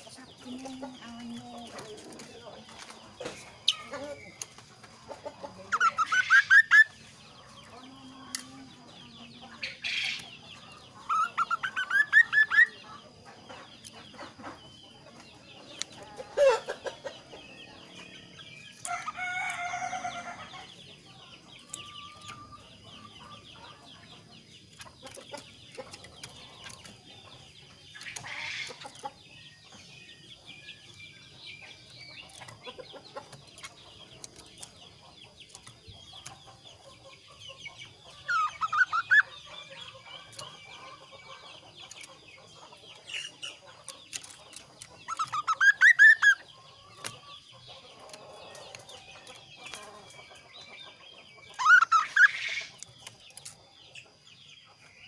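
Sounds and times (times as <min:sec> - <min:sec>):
bird calling: 0:05.4 - 0:07.0, 0:11.0 - 0:12.8, 0:38.2 - 0:42.0, 0:45.0 - 0:46.5, 0:51.5 - 0:52.9.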